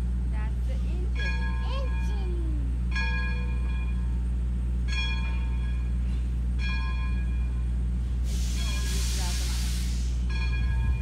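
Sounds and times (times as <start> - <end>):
locomotive bell clanging: 0.0 - 9.3, 10.2 - 11.0
loud steam hiss: 8.2 - 10.4.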